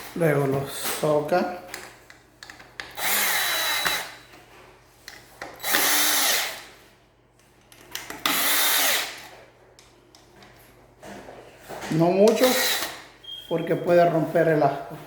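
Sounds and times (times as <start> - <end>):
power drill tightening screws: 2.8 - 4.2, 5.6 - 6.7, 8.0 - 9.3, 12.3 - 13.1.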